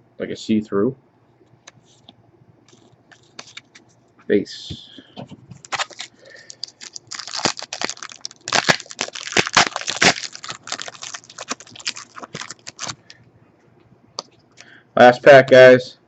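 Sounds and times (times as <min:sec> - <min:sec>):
cards clicking and rustling: 0:02.7 - 0:03.8, 0:05.6 - 0:13.1.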